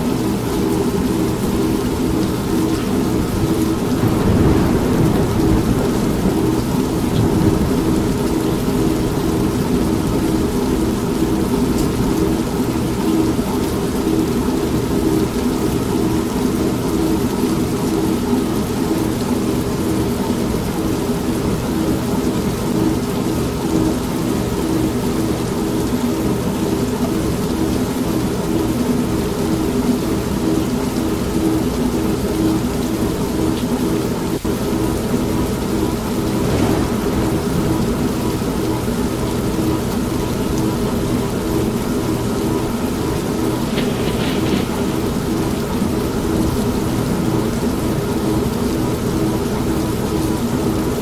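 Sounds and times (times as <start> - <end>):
steady rain: 0.0 - 51.0
washing machine pulsing drone: 0.0 - 51.0
thunder rolling: 0.9 - 12.7, 35.8 - 48.2.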